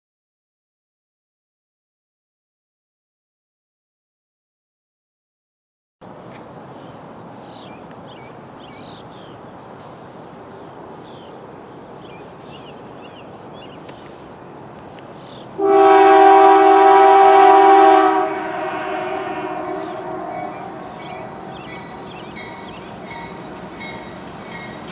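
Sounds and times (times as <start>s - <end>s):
birds chirping: 6.0s - 15.6s, 19.6s - 24.9s
locomotive horn chord: 15.6s - 22.6s.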